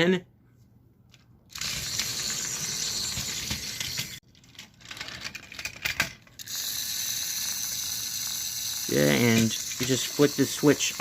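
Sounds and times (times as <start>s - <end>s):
toy train motor whirring: 1.5s - 11.0s.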